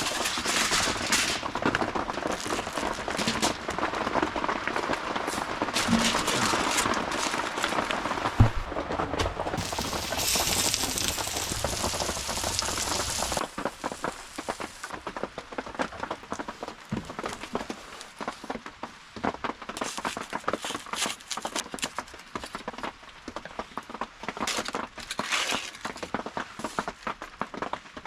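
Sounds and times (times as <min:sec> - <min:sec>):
campfire crackling: 0:09.5 - 0:18.6
loud steady hiss: 0:09.6 - 0:15.0.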